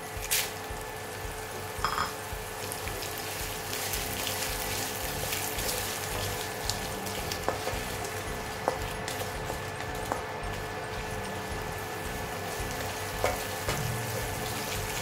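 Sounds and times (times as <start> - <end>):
onions sizzling in hot oil: 0.0 - 15.0
spatula clicking against pan: 12.8 - 13.9.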